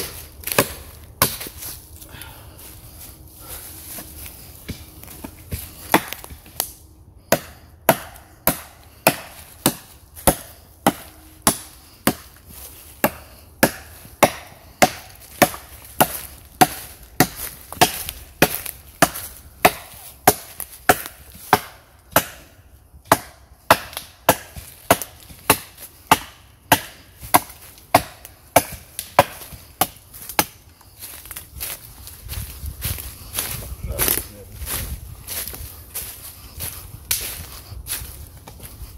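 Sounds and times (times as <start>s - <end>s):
wood being chopped: 0.0s - 1.7s, 4.6s - 12.4s, 13.0s - 31.4s.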